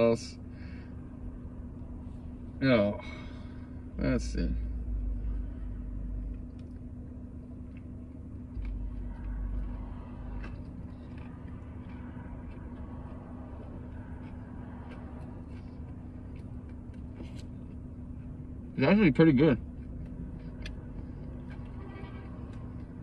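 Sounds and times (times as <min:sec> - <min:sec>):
car hum: 0:00.0 - 0:23.0
person chewing food: 0:06.1 - 0:18.7, 0:19.6 - 0:23.0.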